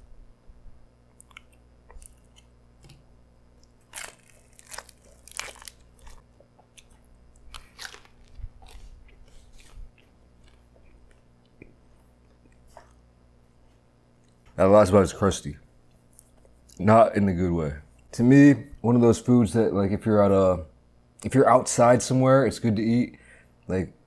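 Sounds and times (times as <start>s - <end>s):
chewing crunchy pretzel crust: 1.2s - 3.0s, 3.6s - 13.0s.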